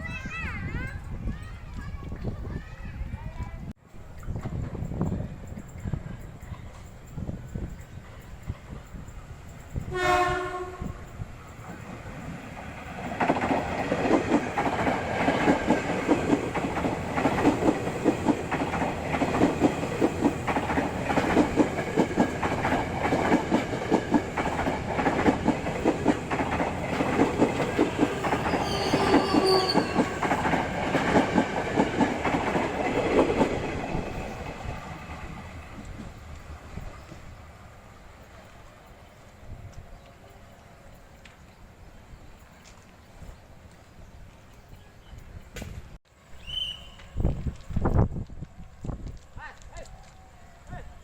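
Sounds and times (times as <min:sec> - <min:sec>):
train wheels clattering over rails: 0:04.0 - 0:37.3
train horn: 0:09.9 - 0:11.1, 0:28.4 - 0:30.2.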